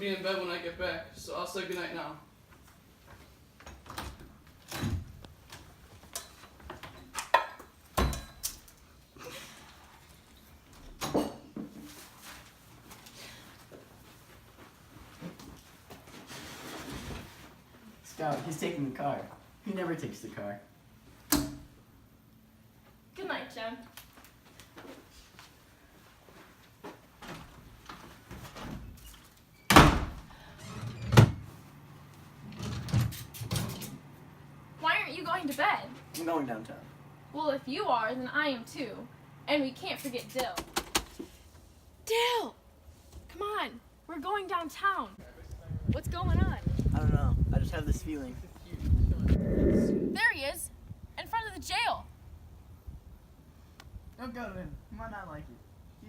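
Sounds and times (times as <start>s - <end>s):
heavy door thud: 29.7s - 30.3s.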